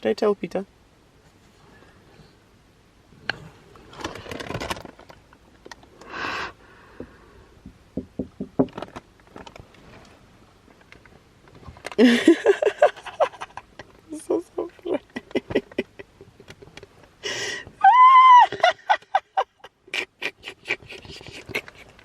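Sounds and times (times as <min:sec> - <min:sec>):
woman's voice: 0:00.0 - 0:00.7, 0:14.1 - 0:15.6
rustling: 0:03.1 - 0:06.1, 0:08.6 - 0:12.1.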